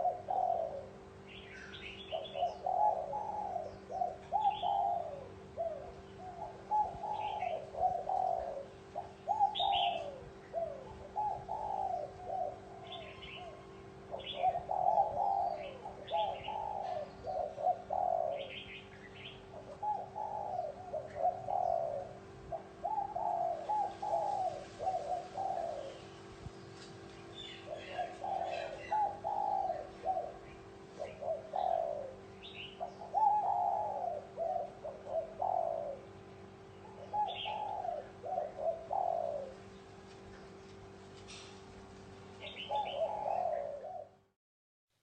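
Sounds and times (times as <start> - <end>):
small birds chirping: 0.0 - 22.2, 22.8 - 41.6, 42.3 - 44.0
faint steady hum: 0.0 - 44.3
dove cooing: 0.0 - 44.4.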